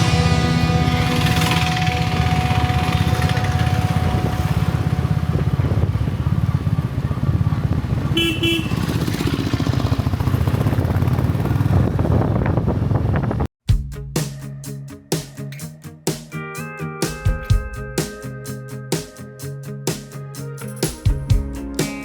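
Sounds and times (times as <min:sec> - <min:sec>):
motorcycle engine running: 0:00.0 - 0:13.5
vehicle horn toot: 0:08.1 - 0:09.2.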